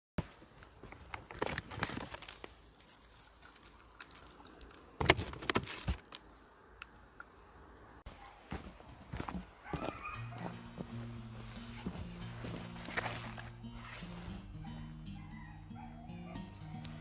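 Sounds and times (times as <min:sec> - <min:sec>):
small clicks and rustling: 0:00.4 - 0:07.8.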